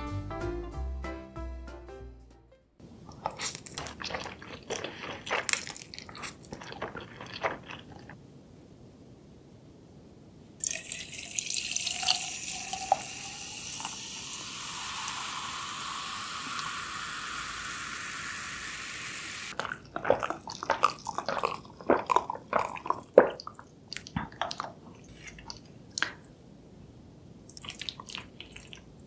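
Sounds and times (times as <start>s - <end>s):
swallowing gulps: 3.1s - 8.2s, 19.5s - 26.2s, 27.5s - 29.0s
ice clinking in glass: 10.6s - 14.0s
soda fizzing while poured: 10.6s - 21.8s.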